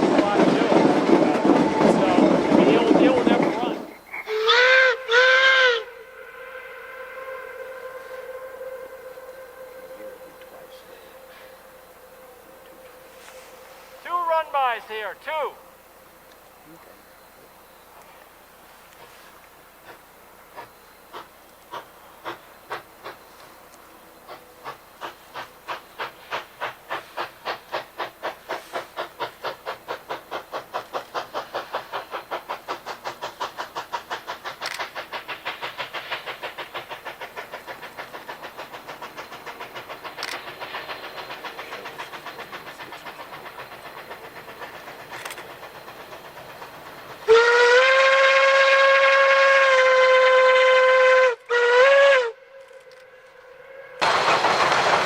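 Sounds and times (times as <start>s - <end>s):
steam locomotive chuffing: 0.0s - 55.0s
steam whistle blasts: 4.3s - 14.9s, 47.2s - 54.6s.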